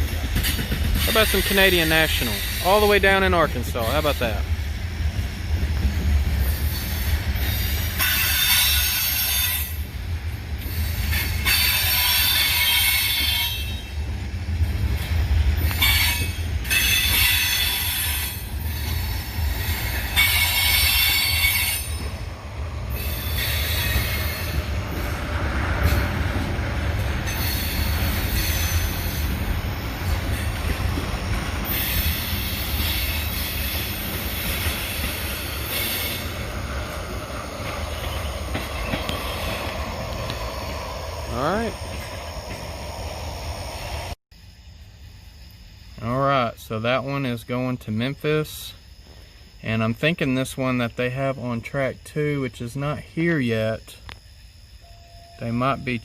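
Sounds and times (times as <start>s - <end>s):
freight train rumbling past: 0.0s - 44.2s
steel wheels squealing: 0.1s - 4.4s, 6.4s - 9.9s, 10.6s - 14.1s, 15.6s - 22.3s, 22.9s - 42.8s.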